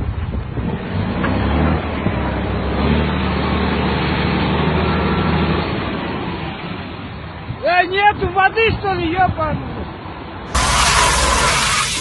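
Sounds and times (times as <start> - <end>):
vehicle engine running hard: 0.0 - 7.5
rushing noise: 10.5 - 12.0.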